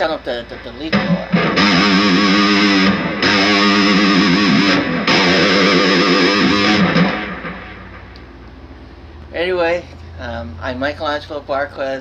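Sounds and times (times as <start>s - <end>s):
distorted electric guitar wavering notes: 0.6s - 8.5s.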